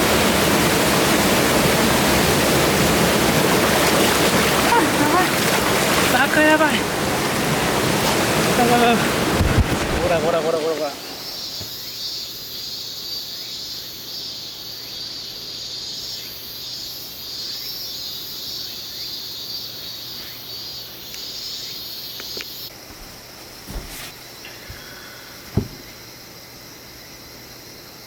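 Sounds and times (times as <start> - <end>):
insects chorus: 0.0 - 28.0
thud: 23.7 - 24.2, 25.5 - 26.0
sharp knocks: 25.5 - 26.0.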